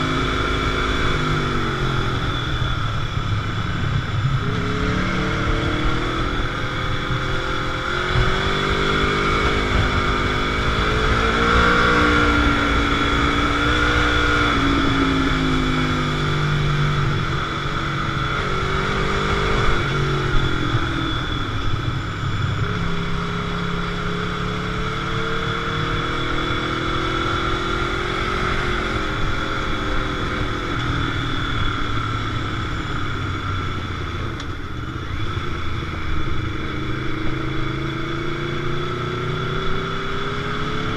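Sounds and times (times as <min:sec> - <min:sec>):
motorcycle engine revving: 0:00.0 - 0:40.9
road noise: 0:00.0 - 0:40.9
wind noise: 0:00.0 - 0:40.9.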